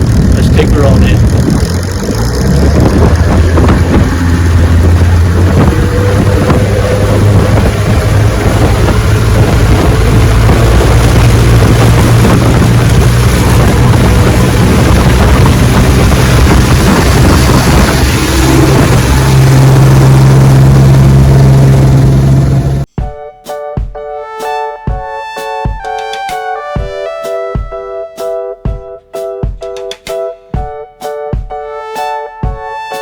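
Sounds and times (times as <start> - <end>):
outboard motor running: 0.0 - 22.9
water rushing: 0.0 - 22.9
wind buffeting microphone: 0.0 - 22.9.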